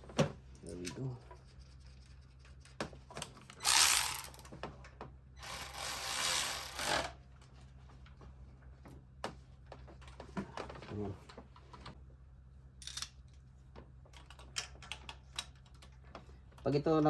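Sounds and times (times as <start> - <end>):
power tool running: 3.6 - 4.4, 5.4 - 7.2
small clicks of hand work: 12.8 - 16.6.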